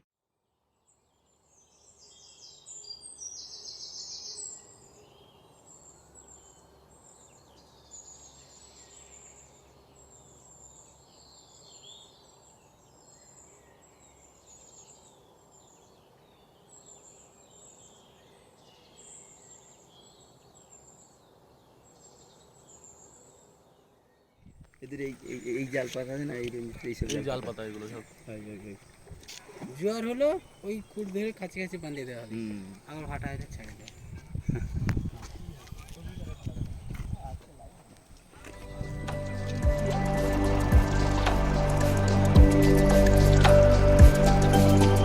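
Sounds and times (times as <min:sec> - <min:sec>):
birds chirping and calling: 0:24.8 - 0:45.0.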